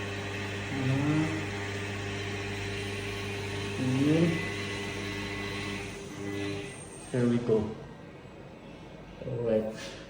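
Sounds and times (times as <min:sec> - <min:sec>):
balancing machine humming and whirring: 0:00.0 - 0:06.8.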